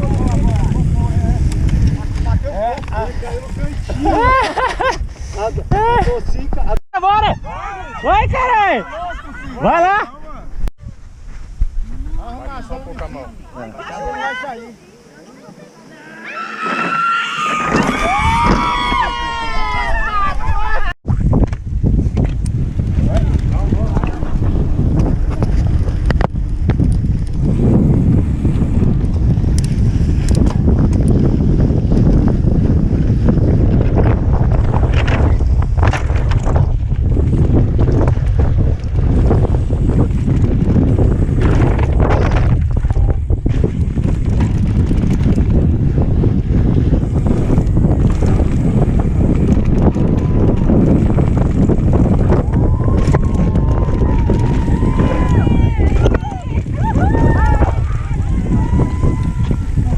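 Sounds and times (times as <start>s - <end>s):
bike clicks and rattles: 0.0s - 4.0s, 21.2s - 59.9s
wind buffeting microphone: 0.0s - 14.8s, 16.6s - 59.9s.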